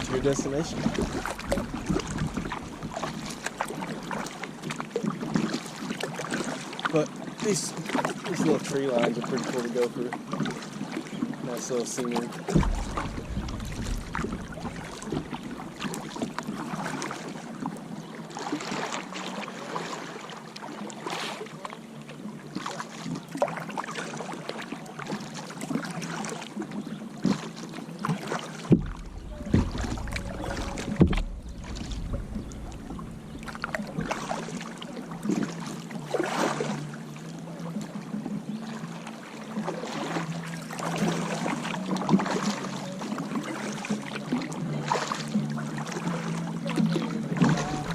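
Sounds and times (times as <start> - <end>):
paddle splashing in water: 0.0 - 47.9
sharp knocks: 12.5 - 15.3
steady low hum: 12.5 - 16.6, 28.8 - 35.6.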